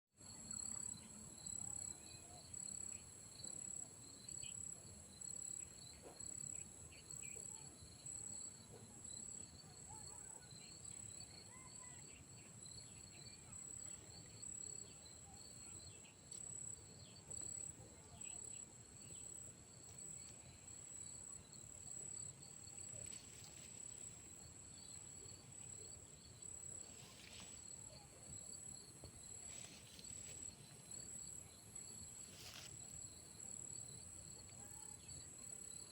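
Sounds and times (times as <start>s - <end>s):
crickets trilling: 10.4s - 35.9s.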